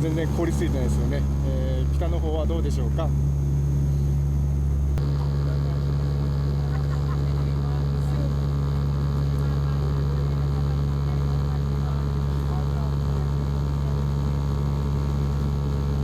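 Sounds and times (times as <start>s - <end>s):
airplane cabin drone: 0.0s - 16.0s.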